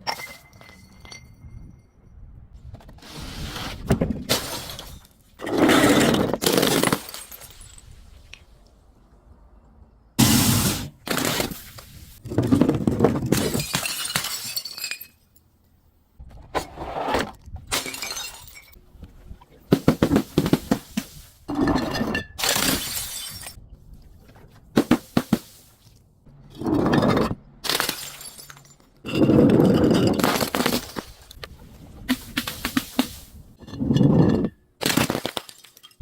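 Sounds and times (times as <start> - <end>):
glass bottles smashing: 0.0 - 1.4, 4.3 - 5.2, 5.8 - 7.9, 13.2 - 15.4, 17.7 - 18.8, 21.5 - 23.6, 26.7 - 31.2.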